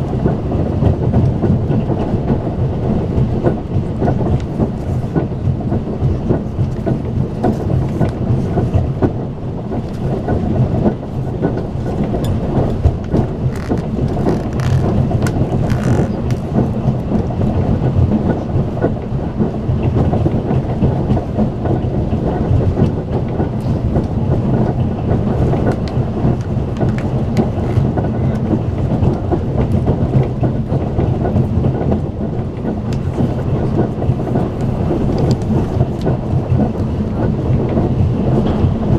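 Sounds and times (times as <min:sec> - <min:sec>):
train coach rumbling at speed: 0:00.0 - 0:38.9.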